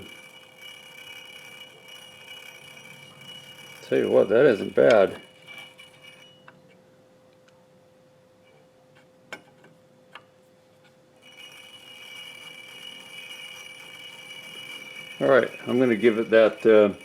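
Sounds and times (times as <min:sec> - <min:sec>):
machine high-pitched whine: 0:00.0 - 0:06.8, 0:11.2 - 0:17.0.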